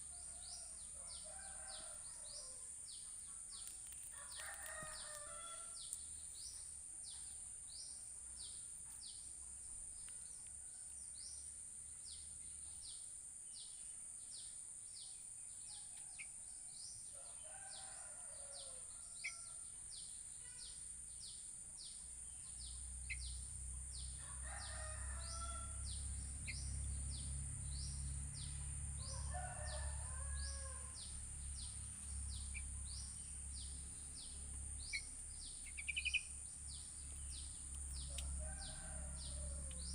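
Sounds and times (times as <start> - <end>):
roosters crowing: 4.1 - 5.8, 17.2 - 19.6, 24.2 - 26.0, 28.8 - 31.0, 38.0 - 39.9.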